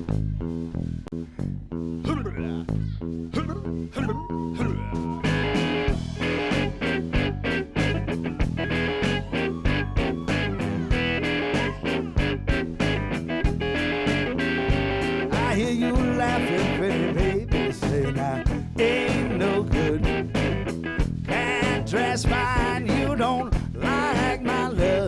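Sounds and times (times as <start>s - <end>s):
bass guitar: 0.0s - 25.0s
blues guitar: 0.0s - 25.0s
steady beat: 4.9s - 22.8s.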